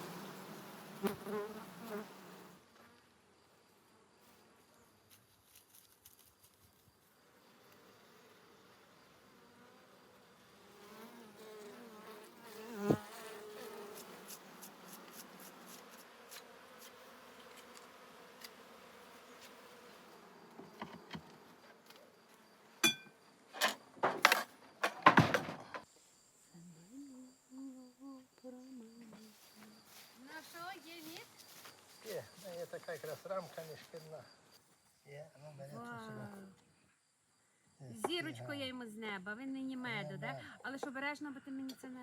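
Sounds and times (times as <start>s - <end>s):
bees buzzing: 0.0s - 2.6s, 7.4s - 21.4s.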